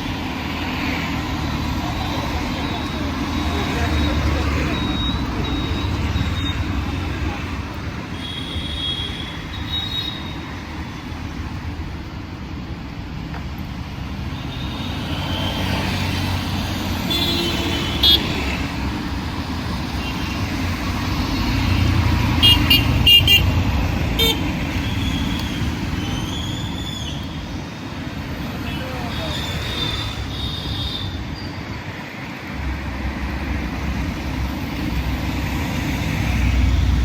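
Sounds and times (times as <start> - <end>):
road traffic rumble: 0.0 - 37.0
vehicle horn toots: 24.2 - 24.4.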